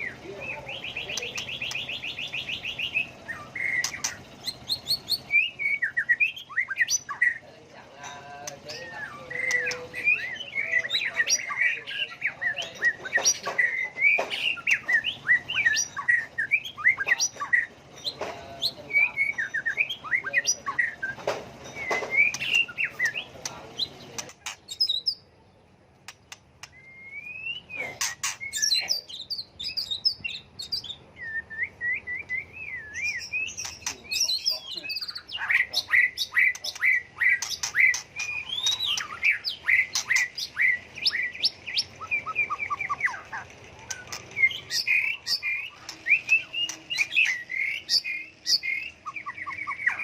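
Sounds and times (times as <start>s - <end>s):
bird singing whistled phrases: 0.0s - 7.4s, 18.9s - 23.3s, 26.6s - 50.0s
sharp clicks: 26.0s - 26.9s, 43.5s - 44.5s.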